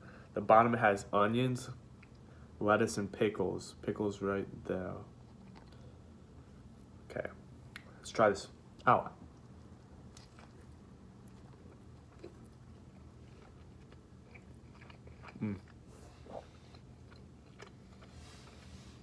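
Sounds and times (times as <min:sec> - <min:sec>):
chewing with wet mouth clicks: 0:05.3 - 0:05.8, 0:09.2 - 0:18.2.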